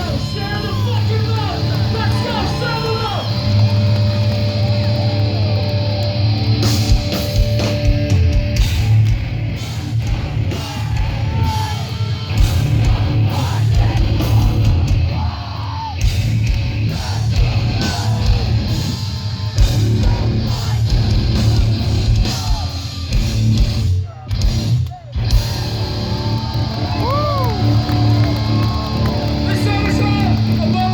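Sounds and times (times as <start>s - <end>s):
distorted electric guitars: 0.0s - 15.4s, 16.0s - 30.9s
heavy bass: 0.0s - 30.9s
pounding drums: 6.6s - 25.9s.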